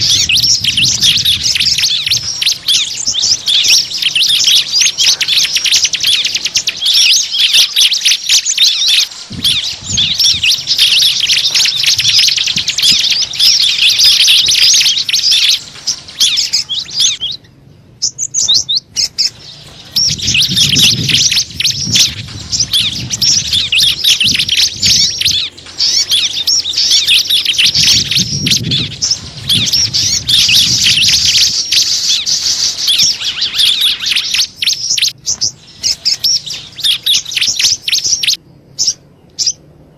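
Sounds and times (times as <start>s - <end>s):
small birds chirping: 0.0s - 39.9s
low rumble: 9.1s - 37.0s.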